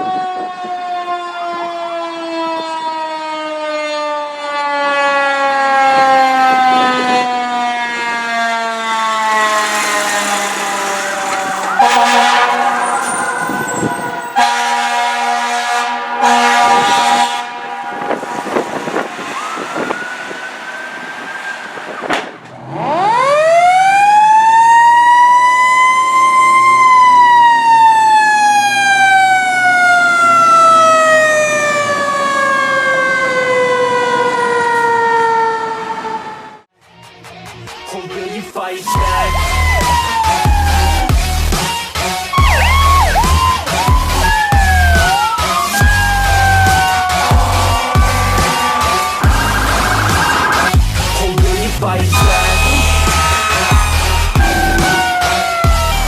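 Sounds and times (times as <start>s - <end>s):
fire engine siren wailing: 0.0s - 36.7s, 38.9s - 56.0s
air horn blasts: 5.8s - 21.0s, 38.9s - 41.6s, 42.3s - 51.2s, 52.1s - 55.8s.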